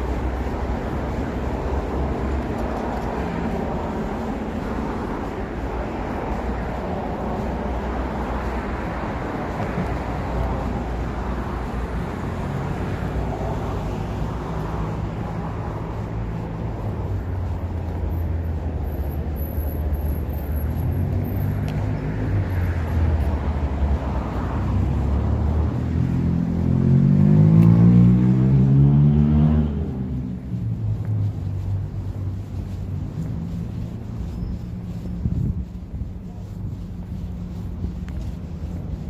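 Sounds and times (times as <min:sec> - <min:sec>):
vehicle engines rumbling: 0:00.0 - 0:39.0
vehicle accelerating close by: 0:20.3 - 0:34.4.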